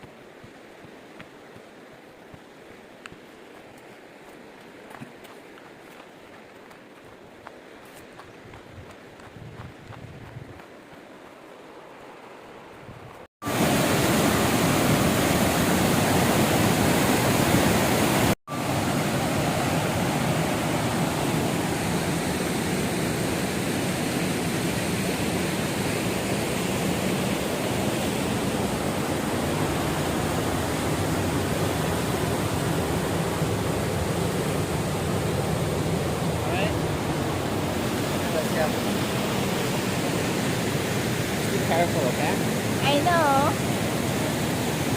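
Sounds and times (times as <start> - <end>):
waterfall rushing and splashing: 13.4 - 44.9.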